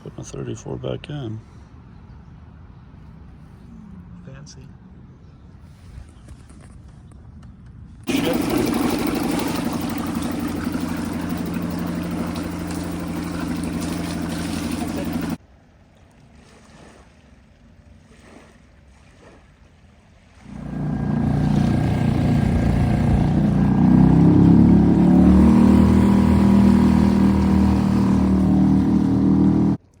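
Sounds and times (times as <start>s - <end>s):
outboard motor running: 8.1s - 15.4s, 20.3s - 29.8s
faint water splashes: 8.1s - 30.0s.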